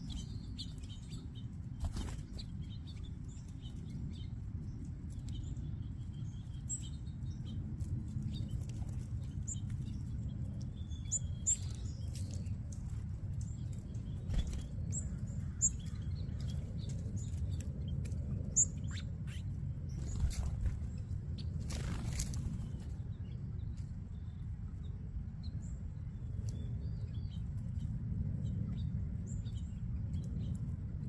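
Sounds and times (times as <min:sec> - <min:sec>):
small birds chirping: 0:00.0 - 0:31.0
steady low rumble: 0:00.0 - 0:31.0
wings fluttering: 0:01.7 - 0:02.8, 0:13.7 - 0:15.0, 0:16.4 - 0:23.0.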